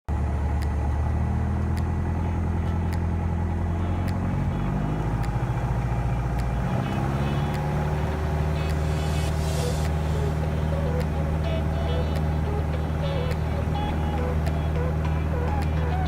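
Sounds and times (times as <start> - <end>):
airplane engine and propeller: 2.2 - 16.0
faint regular ticks: 6.3 - 16.0.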